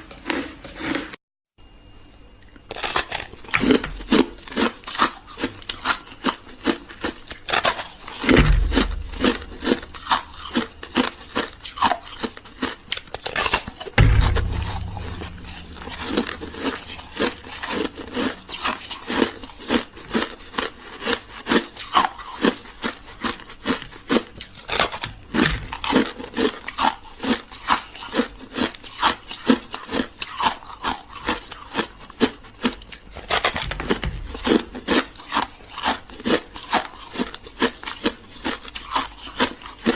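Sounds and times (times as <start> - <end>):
deep thumps: 8.4 - 10.6, 14.0 - 18.5.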